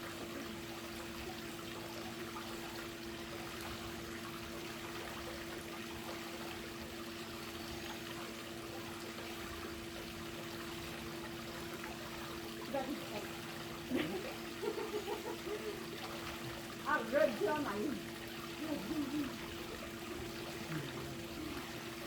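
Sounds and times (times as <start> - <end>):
steady low hum: 0.0 - 22.0
water trickling and pouring: 0.0 - 22.0.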